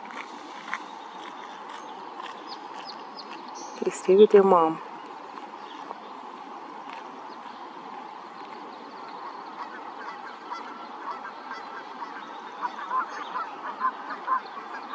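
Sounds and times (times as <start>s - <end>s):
waterfowl honking calls: 9.2s - 14.9s.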